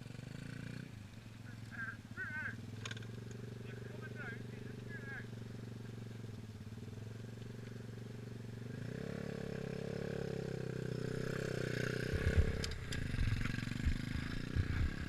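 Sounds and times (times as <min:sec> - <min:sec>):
dirt bike engine revving: 0:00.0 - 0:15.0
low thumps: 0:12.0 - 0:15.0.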